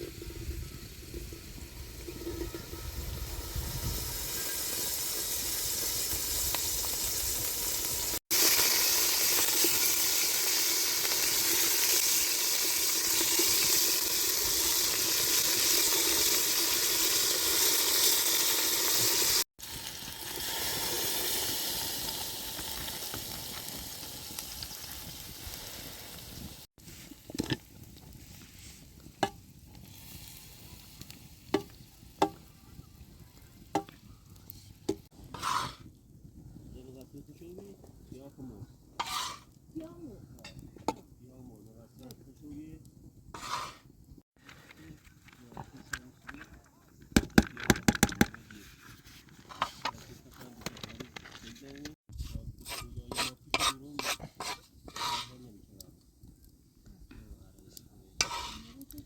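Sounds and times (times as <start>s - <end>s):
food sizzling in a pan: 0.0s - 35.9s, 39.0s - 39.6s, 43.4s - 43.9s, 52.6s - 55.4s, 58.2s - 59.0s.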